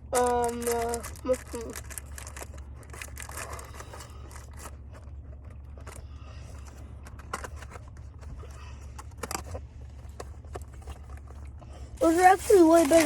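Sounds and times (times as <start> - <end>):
snack bag crinkling: 0.0 - 6.0, 10.6 - 13.0
low steady hum: 0.0 - 13.0.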